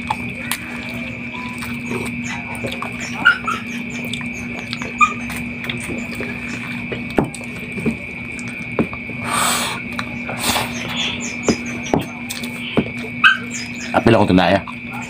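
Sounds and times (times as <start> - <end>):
chewing and lip-smacking: 0.0 - 9.2, 9.8 - 13.9
faint hum: 0.0 - 15.0
short hissing: 9.2 - 11.4.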